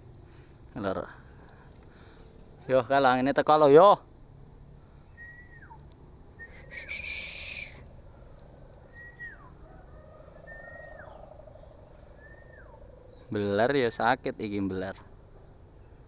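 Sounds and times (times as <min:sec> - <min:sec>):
bird whistle sliding down: 0:06.4 - 0:07.8
hiss: 0:06.4 - 0:07.8.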